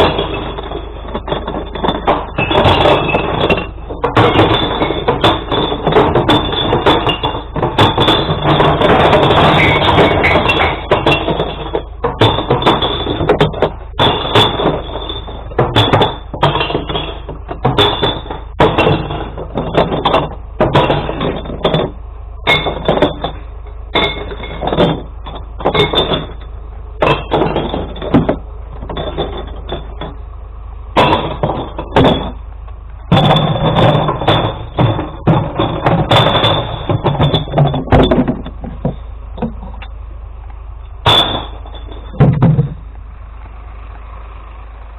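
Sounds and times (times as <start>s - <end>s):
glass bottles crashing and smashing: 0.0s - 30.2s, 30.9s - 32.4s, 33.1s - 39.8s, 41.0s - 42.8s.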